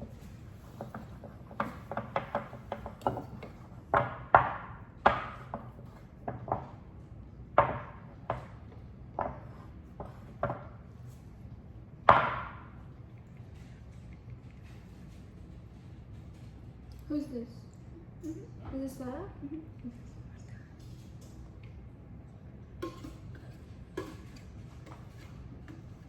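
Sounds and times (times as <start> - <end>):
utensils clinking against dishes: 22.8 - 26.0.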